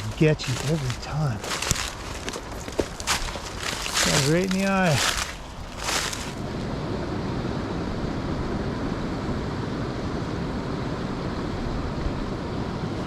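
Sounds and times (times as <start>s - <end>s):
creek water rushing: 0.0s - 6.6s.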